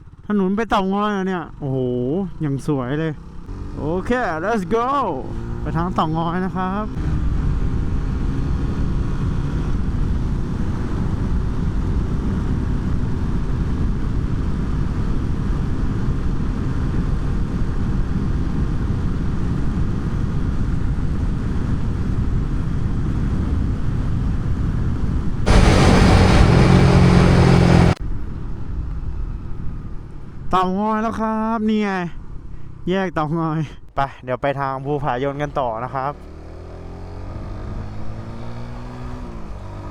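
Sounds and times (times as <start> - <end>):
vehicle engine and tyre rumble: 0.0 - 33.5, 34.9 - 39.9
loud hissing rush: 25.5 - 28.0
strong steady hum: 25.5 - 28.7.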